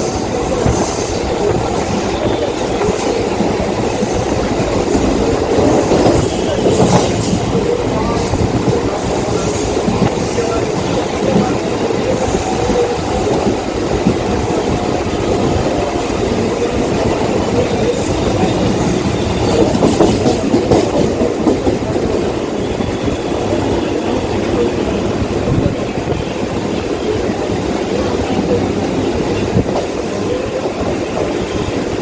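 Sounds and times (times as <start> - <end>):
electric train rumbling on track: 0.0 - 32.0.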